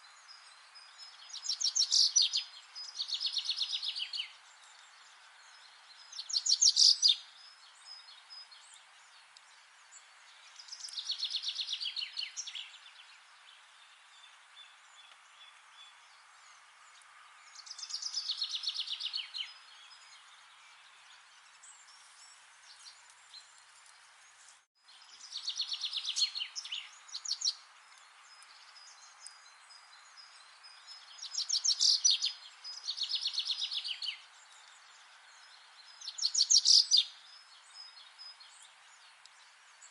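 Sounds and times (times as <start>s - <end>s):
background hiss: 0.0s - 39.9s
songbird trilling: 6.2s - 7.2s, 31.1s - 34.2s.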